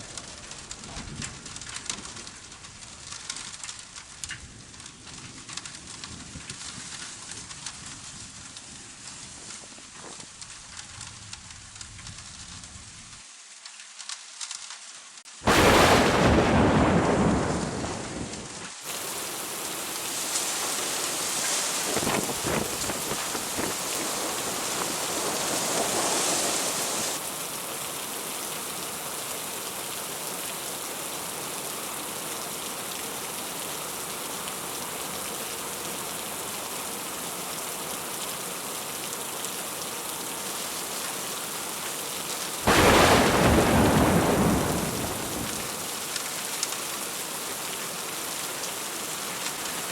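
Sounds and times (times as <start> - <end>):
heavy rain: 0.0 - 49.9
loud thunderclap: 15.5 - 18.6, 21.7 - 27.2, 42.7 - 45.8
rolling thunder: 15.5 - 27.2, 42.7 - 45.8.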